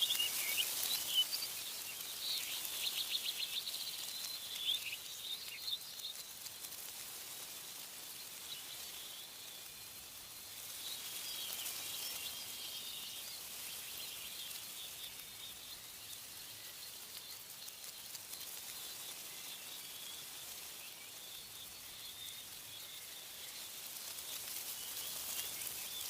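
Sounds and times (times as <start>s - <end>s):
faint bird chirps: 0.0s - 26.0s
wind rustling leaves: 0.0s - 26.0s.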